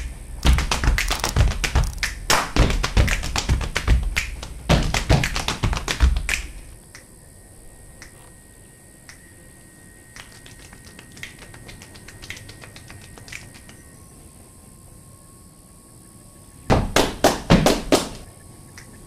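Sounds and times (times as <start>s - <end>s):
percussion claps and taps: 0.0s - 6.6s, 10.2s - 13.8s, 16.7s - 18.2s
faint steady high tone: 13.8s - 16.7s.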